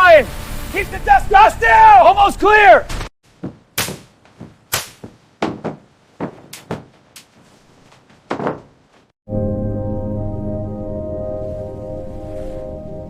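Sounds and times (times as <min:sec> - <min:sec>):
sharp knocks and thuds: 0:02.9 - 0:09.1.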